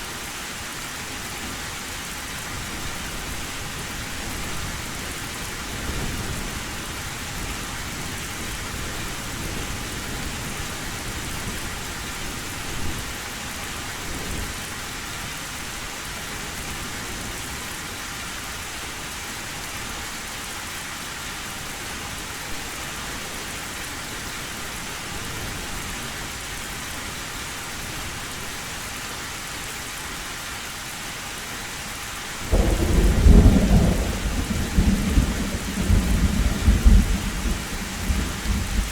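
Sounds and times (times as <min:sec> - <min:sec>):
heavy rain on a tin roof: 0:00.0 - 0:38.9
loud thunderclap: 0:32.5 - 0:38.9
low thunder rumbles: 0:32.5 - 0:38.9.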